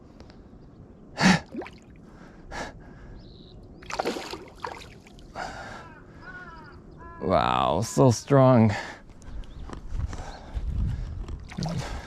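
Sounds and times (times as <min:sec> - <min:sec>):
man breathing and gasping: 0:01.2 - 0:03.3, 0:05.3 - 0:06.4, 0:10.0 - 0:12.0.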